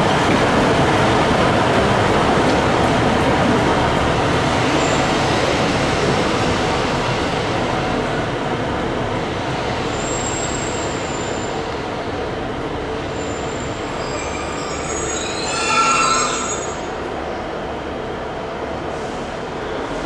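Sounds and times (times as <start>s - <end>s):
train rumbling: 0.0s - 20.0s
train wheels squealing: 9.9s - 11.7s, 13.0s - 17.0s.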